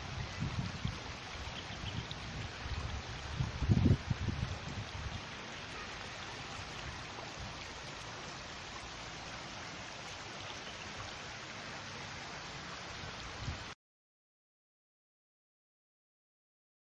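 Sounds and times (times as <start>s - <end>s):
wind buffeting microphone: 0.0s - 5.4s
flowing water: 0.0s - 13.8s.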